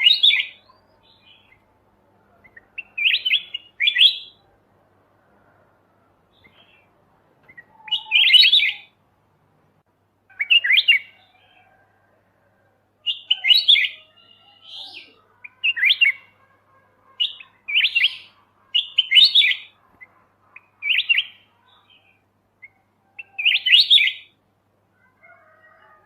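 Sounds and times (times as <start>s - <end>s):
bird singing chirping phrases: 0.0s - 4.5s, 6.3s - 9.0s, 10.3s - 11.8s, 13.0s - 24.4s.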